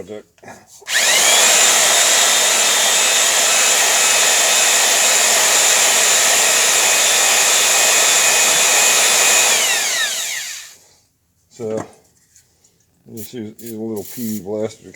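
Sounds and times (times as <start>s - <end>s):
electric drill whirring: 0.9s - 10.8s.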